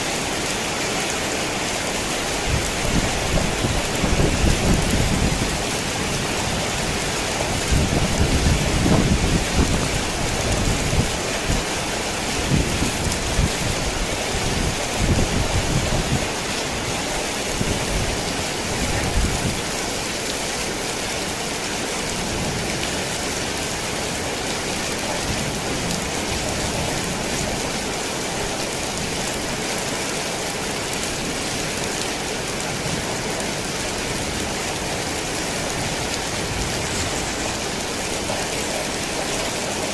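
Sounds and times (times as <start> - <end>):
heavy rain on a tin roof: 0.0 - 39.9
thunder rumbling: 2.4 - 11.1.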